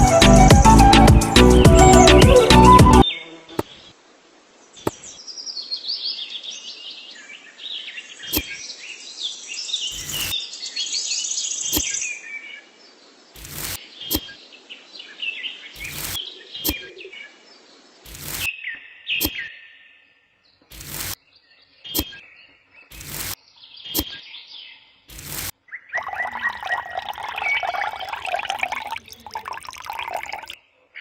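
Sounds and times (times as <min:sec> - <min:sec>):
music: 0:00.0 - 0:03.0
birds chirping and twittering: 0:04.6 - 0:31.0.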